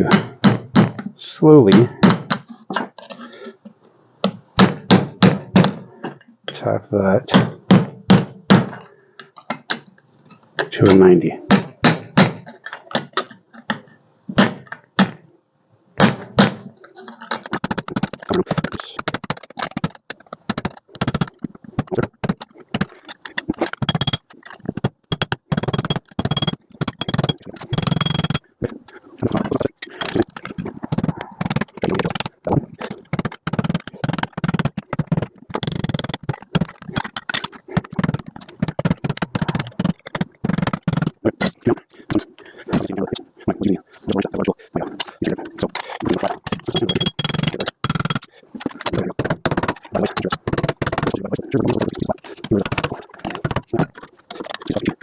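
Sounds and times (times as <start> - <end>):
hammer tapping sheet metal: 25.1 - 28.4, 46.5 - 48.3.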